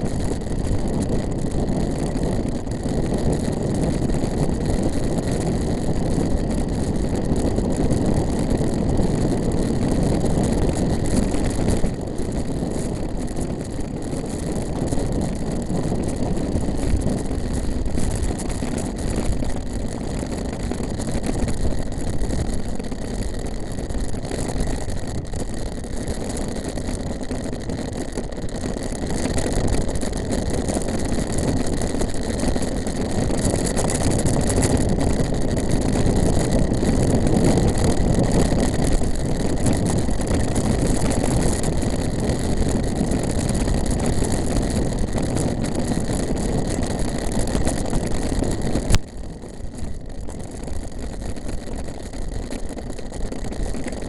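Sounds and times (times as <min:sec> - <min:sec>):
bike tyre noise on track: 0:00.0 - 0:54.0
wind rush on microphone: 0:00.0 - 0:54.0.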